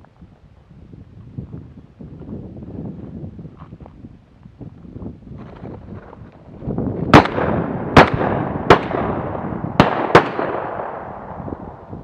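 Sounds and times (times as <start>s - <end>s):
shotgun shots echoing: 7.1s - 11.6s.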